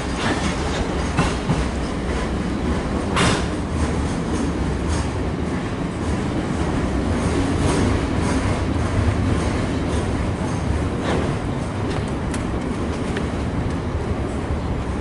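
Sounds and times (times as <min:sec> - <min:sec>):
wheels clacking over rail joints: 0:00.0 - 0:14.7
freight train rumbling past: 0:00.0 - 0:15.0.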